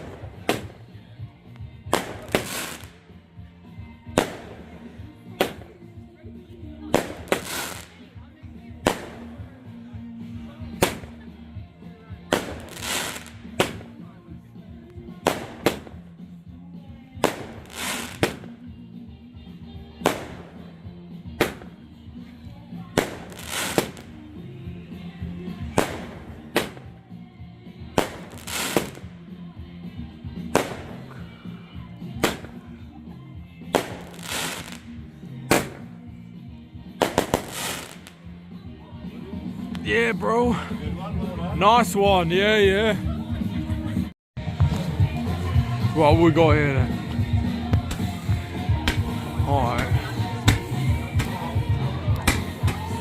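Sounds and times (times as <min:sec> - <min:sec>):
crackling firework bursts: 0:00.0 - 0:01.0, 0:01.9 - 0:03.2, 0:04.1 - 0:04.8, 0:06.9 - 0:08.0, 0:12.3 - 0:14.0, 0:17.2 - 0:18.6, 0:22.9 - 0:24.2, 0:28.0 - 0:29.1, 0:30.5 - 0:31.4, 0:33.7 - 0:36.0, 0:37.0 - 0:38.3
firework bangs: 0:00.0 - 0:01.0, 0:01.8 - 0:03.0, 0:04.1 - 0:05.7, 0:06.8 - 0:08.0, 0:08.8 - 0:09.5, 0:10.8 - 0:11.2, 0:12.3 - 0:14.0, 0:15.2 - 0:16.1, 0:17.2 - 0:18.6, 0:20.0 - 0:20.7, 0:21.3 - 0:21.8, 0:22.8 - 0:24.2, 0:25.6 - 0:27.0, 0:27.9 - 0:29.1, 0:30.4 - 0:31.1, 0:32.1 - 0:32.7, 0:33.6 - 0:36.0, 0:36.9 - 0:38.2, 0:47.7 - 0:53.0
music playing: 0:00.0 - 0:53.0.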